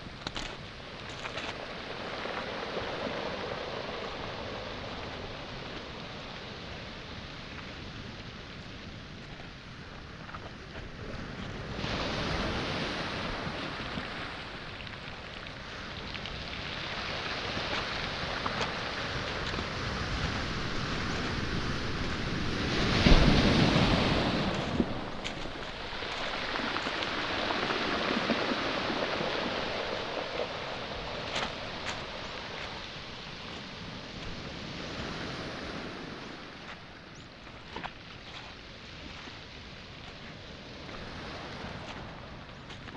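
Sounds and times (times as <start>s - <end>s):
waves washing over pebble shore: 0.0s - 42.9s
wave breaking loudly: 17.3s - 33.7s.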